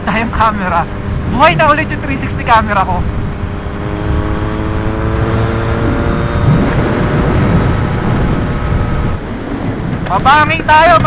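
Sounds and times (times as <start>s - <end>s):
motorcycle engine running: 0.0s - 10.0s
wind noise on microphone: 2.6s - 11.0s.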